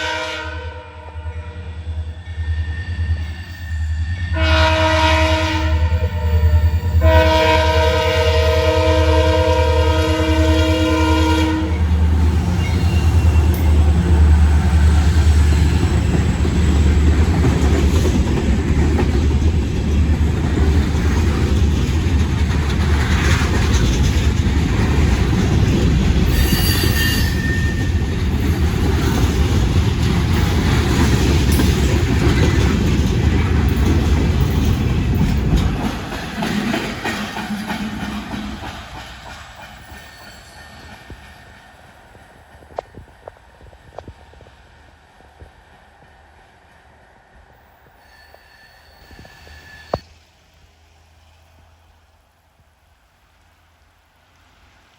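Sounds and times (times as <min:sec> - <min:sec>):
train rumbling on rails: 0:00.0 - 0:54.9
high-pitched wheel squeal: 0:26.3 - 0:28.0, 0:47.9 - 0:50.0.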